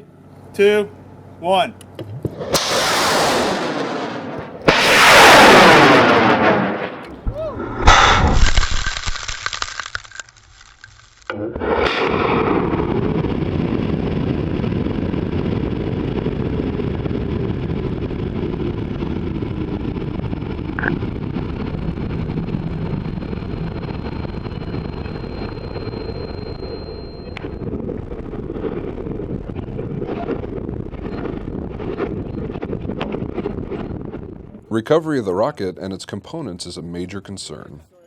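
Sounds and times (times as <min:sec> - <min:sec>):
rocket roar: 0:02.0 - 0:09.4, 0:10.6 - 0:34.7
wind buffeting microphone: 0:12.5 - 0:26.5, 0:27.4 - 0:34.7
faint high whistle: 0:24.0 - 0:27.6.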